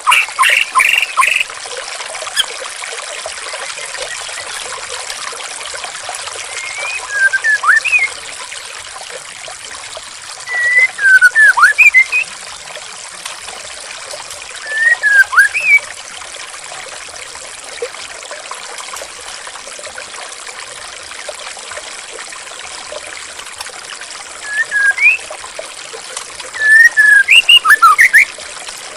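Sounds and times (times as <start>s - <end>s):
songbird whistling: 0.0s - 1.5s, 6.5s - 8.2s, 10.5s - 12.3s, 14.6s - 15.9s, 24.4s - 25.3s, 26.6s - 28.3s
water trickling: 0.0s - 28.9s.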